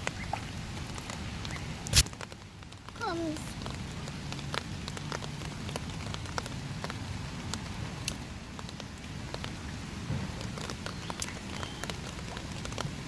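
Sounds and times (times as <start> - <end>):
raindrops tapping sharply: 0.0 - 13.0
steady rain falling: 0.0 - 13.0.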